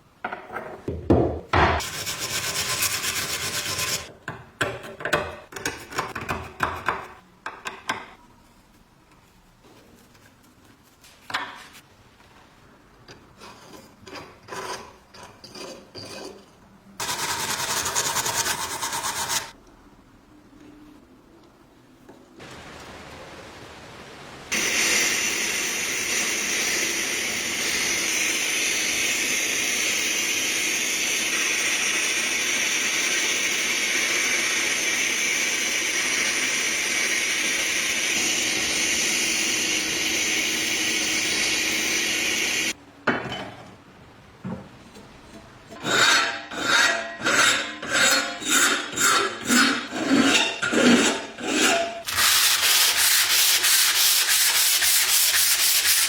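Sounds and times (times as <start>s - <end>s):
back-and-forth sanding strokes: 1.8s - 4.1s, 17.0s - 19.5s, 51.5s - 56.0s
steady sanding: 1.8s - 4.1s, 17.0s - 19.5s, 51.5s - 56.0s.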